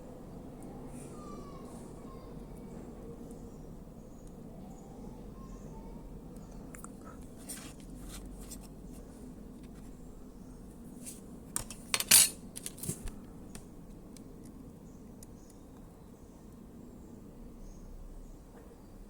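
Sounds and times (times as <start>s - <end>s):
objects clattering: 11.6s - 13.0s.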